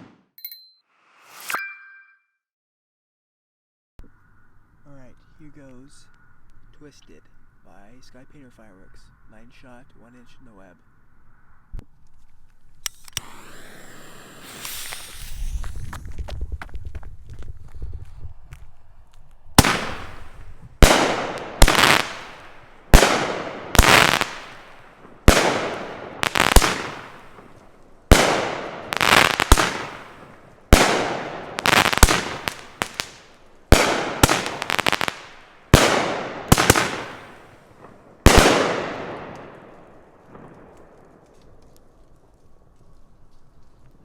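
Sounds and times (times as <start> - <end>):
firework launches: 12.8 - 16.6, 19.6 - 37.6, 38.3 - 39.7
firework bangs: 13.2 - 16.4, 19.6 - 40.9.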